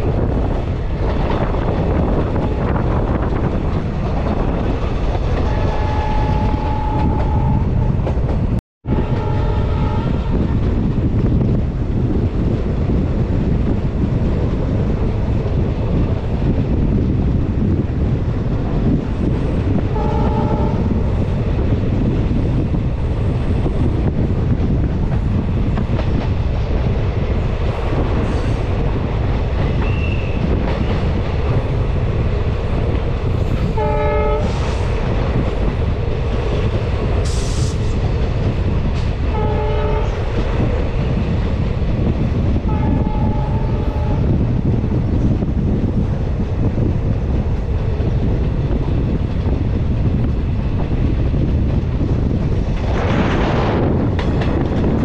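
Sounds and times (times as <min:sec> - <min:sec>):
train wheels rumbling on rail: 0:00.0 - 0:55.0
locomotive horn blasts: 0:05.5 - 0:07.9, 0:08.9 - 0:10.5, 0:19.9 - 0:21.0, 0:33.8 - 0:34.8, 0:39.3 - 0:40.3, 0:42.7 - 0:44.4.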